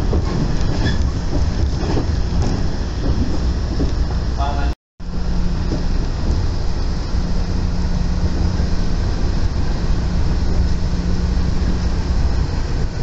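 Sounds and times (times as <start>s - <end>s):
train wheels rumbling: 0.0s - 13.0s
low hum: 5.0s - 13.0s.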